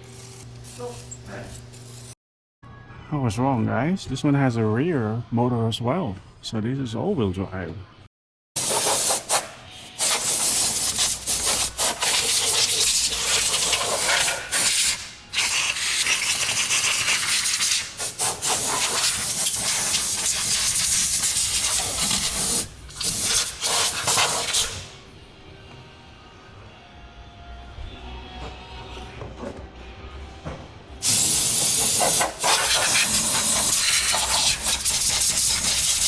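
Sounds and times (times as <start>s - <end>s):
spray hissing: 31.0s - 36.0s.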